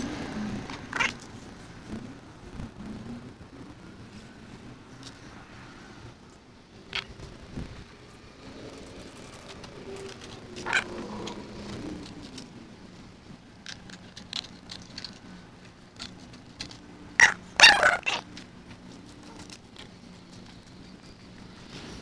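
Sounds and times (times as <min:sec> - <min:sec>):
chickens clucking: 0:17.2 - 0:18.3.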